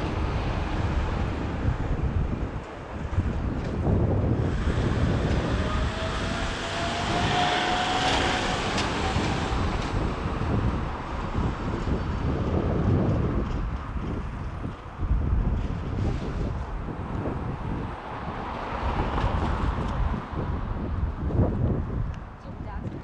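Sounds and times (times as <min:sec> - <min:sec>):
aircraft engine whine: 0:00.0 - 0:18.2
wind buffeting microphone: 0:00.0 - 0:23.0.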